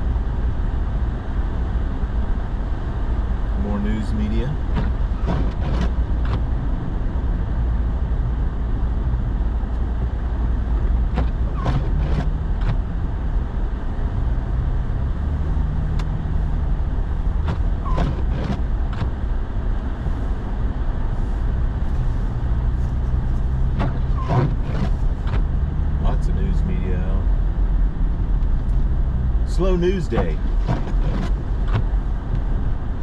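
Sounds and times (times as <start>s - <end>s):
truck engine and road noise: 0.0s - 33.0s.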